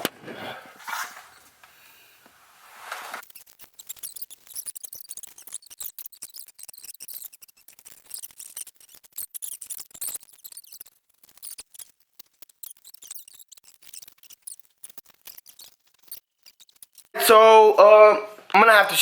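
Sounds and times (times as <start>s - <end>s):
hands scratching and clicking on filter: 2.7s - 17.2s.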